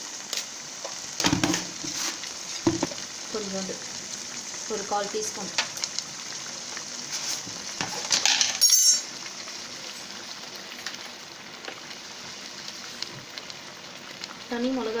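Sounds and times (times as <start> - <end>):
food sizzling in a metal pan: 0.0 - 15.0
spoon clinking against pan: 8.4 - 9.1.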